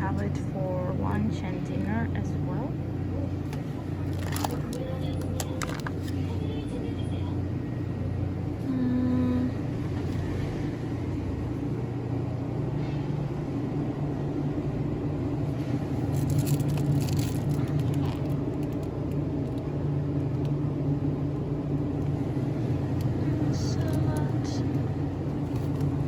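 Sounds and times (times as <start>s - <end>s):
store ambience hum: 0.0s - 26.0s
rustling crackle: 4.0s - 6.2s, 16.0s - 19.0s.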